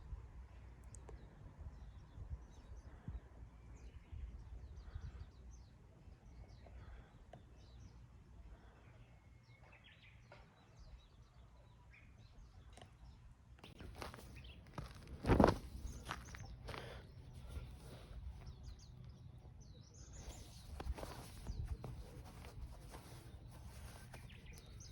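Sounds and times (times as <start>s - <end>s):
rustle: 20.2s - 24.9s.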